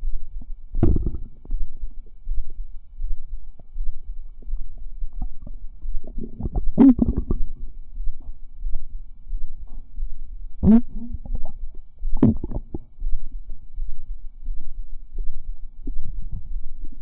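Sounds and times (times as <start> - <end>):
stomach gurgling: 0.4 - 1.6, 4.3 - 8.4, 10.6 - 13.0.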